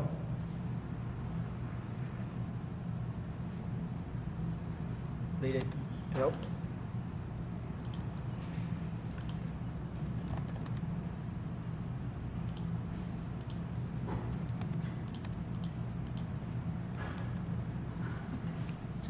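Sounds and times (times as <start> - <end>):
steady low hum: 0.0 - 19.0
computer keyboard clicks: 7.8 - 8.3, 9.2 - 10.8, 12.5 - 12.7, 13.4 - 17.7.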